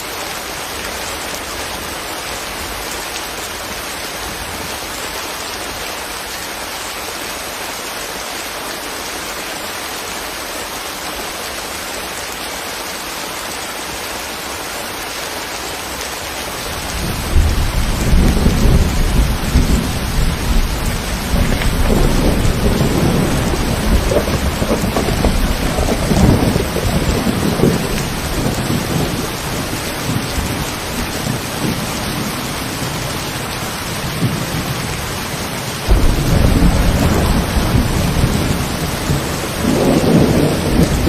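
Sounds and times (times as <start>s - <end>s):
steady rain falling: 0.0s - 41.0s
loud low rumble: 35.9s - 38.7s.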